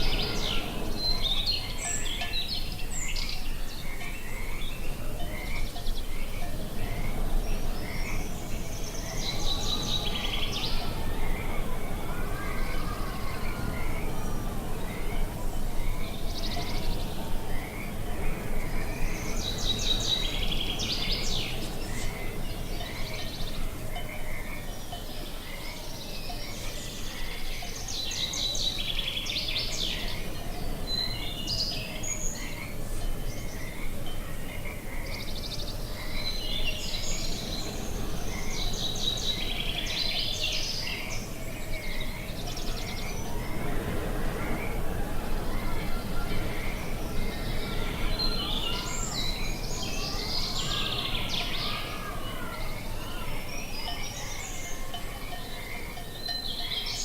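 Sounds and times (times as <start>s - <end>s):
low outdoor ambience: 0.0s - 57.0s
songbirds singing: 0.0s - 57.0s.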